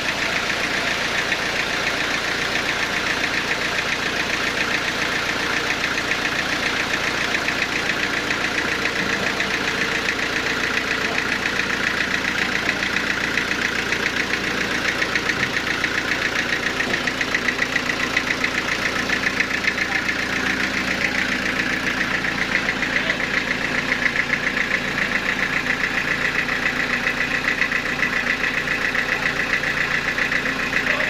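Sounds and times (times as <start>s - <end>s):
sawmill machinery pulsing: 0.0s - 31.0s.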